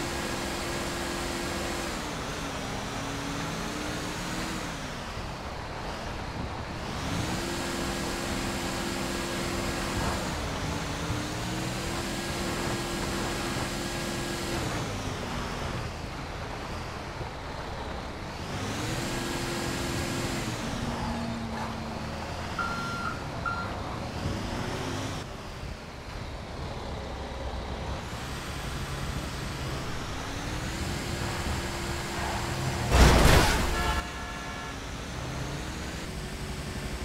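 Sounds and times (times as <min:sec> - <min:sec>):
short high beeps: 0:22.6 - 0:23.8
heavy truck engine revving: 0:26.6 - 0:34.0.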